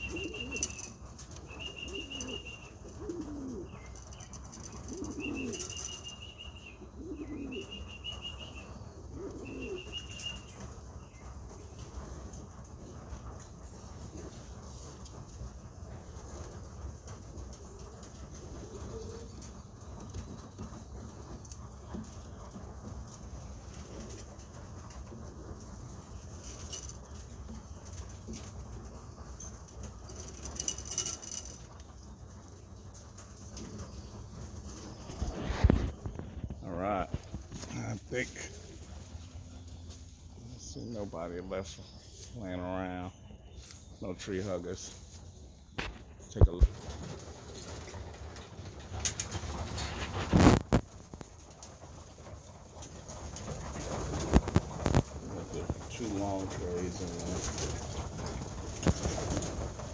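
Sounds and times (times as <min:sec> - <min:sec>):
short rustling: 0:00.0 - 0:06.4, 0:30.0 - 0:31.8
wings flapping and clatter: 0:00.0 - 0:40.1, 0:45.8 - 0:59.9
pigeons cooing: 0:00.0 - 0:41.8, 0:46.7 - 0:59.9.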